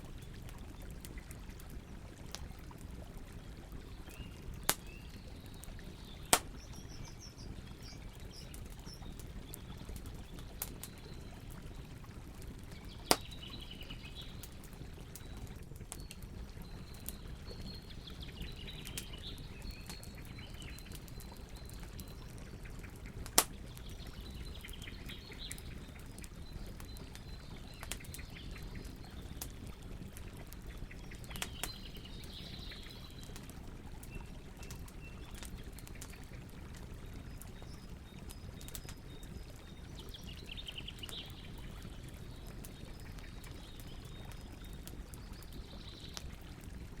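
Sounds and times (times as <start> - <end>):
faint birds chirping: 0.0 - 46.8
campfire burning: 0.0 - 47.0
sharp pops of fire: 4.6 - 4.9, 6.3 - 6.7, 13.0 - 13.4, 23.2 - 23.6.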